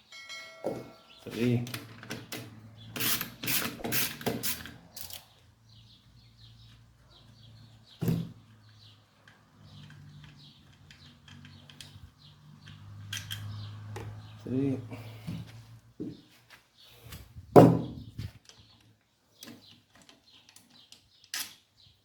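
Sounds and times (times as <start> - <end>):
hand tools clicking and knocking: 0.2 - 5.4.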